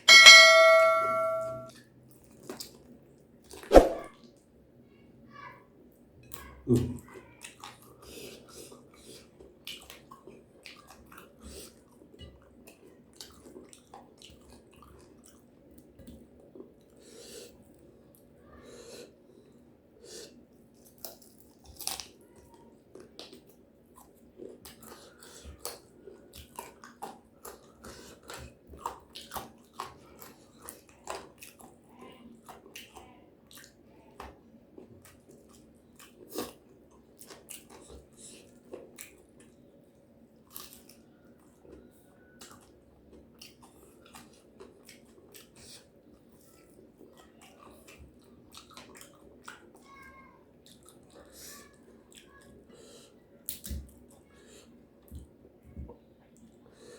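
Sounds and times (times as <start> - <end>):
person chewing crunchy food: 20.8 - 22.2, 22.9 - 32.9, 34.8 - 39.6, 40.4 - 41.8, 42.4 - 49.8.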